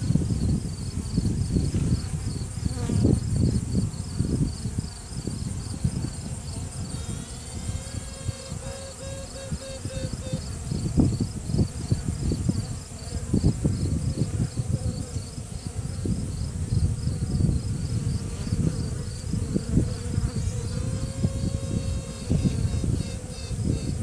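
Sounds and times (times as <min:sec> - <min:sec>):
queen bee piping tone: 0:00.0 - 0:24.0
bees buzzing: 0:00.4 - 0:24.0.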